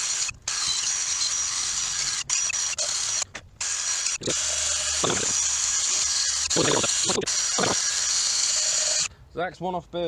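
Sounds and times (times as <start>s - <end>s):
hissing scrubbing noise: 4.2s - 9.1s.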